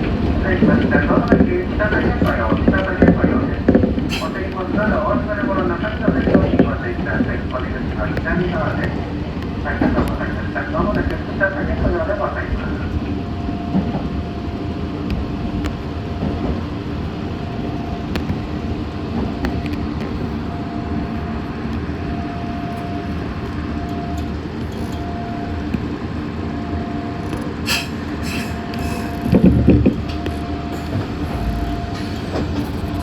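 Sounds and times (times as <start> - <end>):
electric train rumble: 0.0 - 33.0
mid-pitched motor hum: 16.8 - 33.0.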